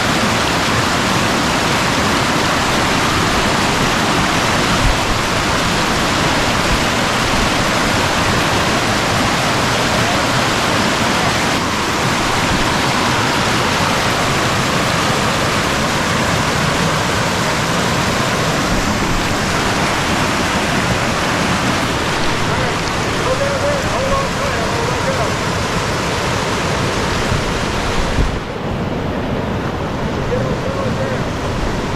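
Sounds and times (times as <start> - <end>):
river water rushing over rocks: 0.0 - 31.9.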